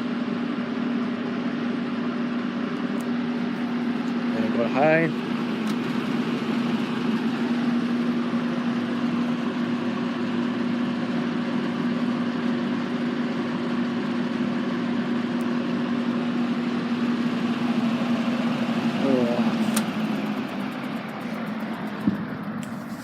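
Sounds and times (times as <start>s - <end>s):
box fan running: 0.0s - 23.0s
fan switch click: 5.6s - 6.0s, 19.5s - 20.1s.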